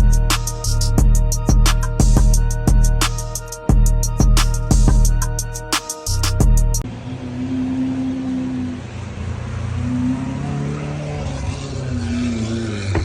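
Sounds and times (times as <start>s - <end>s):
car engine revving: 4.2s - 13.0s.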